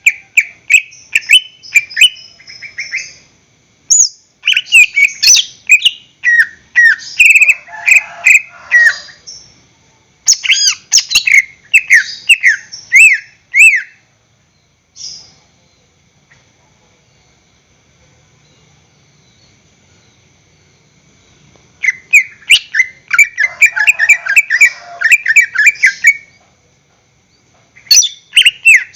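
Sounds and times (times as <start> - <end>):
bird singing whistled notes: 0.0 - 3.3, 3.9 - 7.6, 10.3 - 15.8, 21.8 - 26.4, 27.8 - 28.9.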